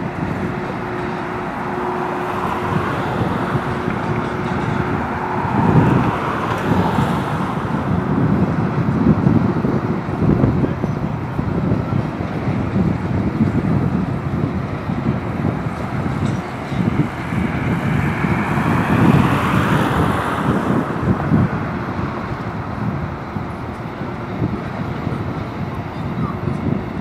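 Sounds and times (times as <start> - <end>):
freight train wheels rumbling: 0.0 - 27.0.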